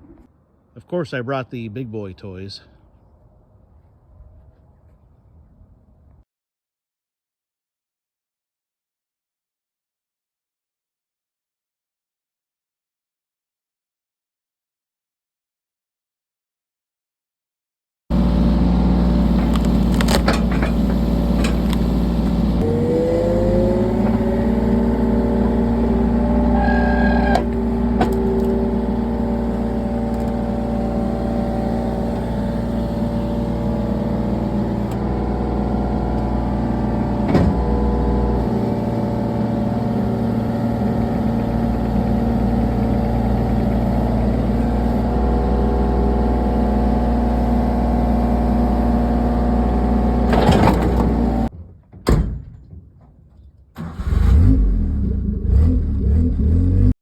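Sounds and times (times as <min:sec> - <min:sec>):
excavator diesel engine revving: 0:18.1 - 0:51.5, 0:53.8 - 0:57.0.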